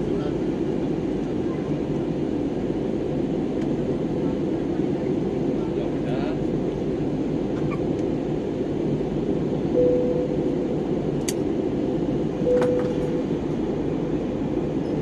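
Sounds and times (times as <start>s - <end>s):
jet engine cabin rumble: 0.0s - 15.0s
brief steady tone: 9.7s - 10.7s, 12.4s - 13.4s.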